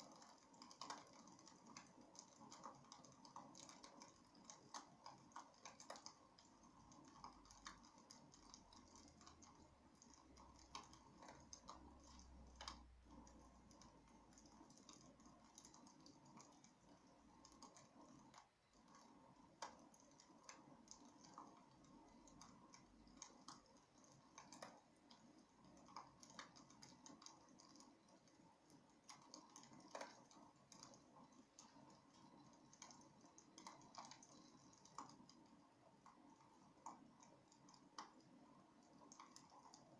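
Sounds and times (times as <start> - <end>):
wood fire crackling: 0.0 - 14.7.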